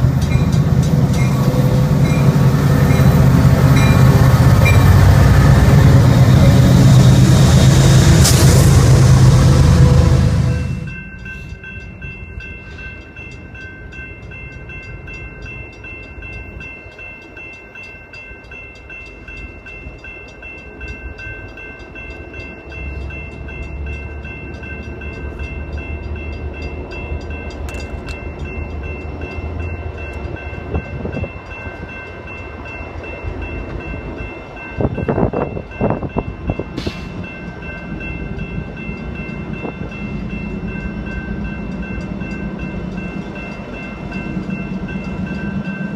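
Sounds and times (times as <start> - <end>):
train wheels clattering: 0.0 - 34.9
train rumbling on rails: 0.0 - 45.9.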